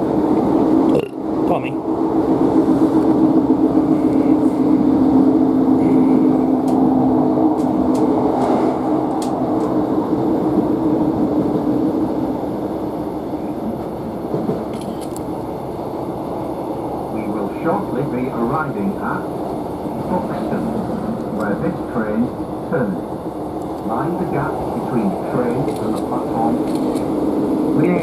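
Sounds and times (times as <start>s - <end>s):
diesel engine hum: 0.0s - 13.4s, 15.0s - 28.0s
train rail noise: 0.0s - 28.0s.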